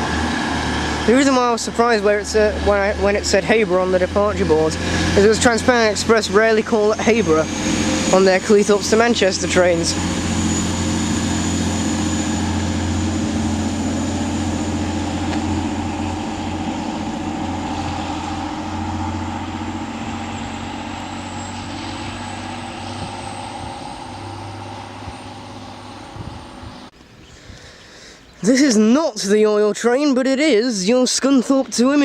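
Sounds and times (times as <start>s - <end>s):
diesel train engines running: 0.0s - 26.9s
faint high whine: 0.8s - 26.9s.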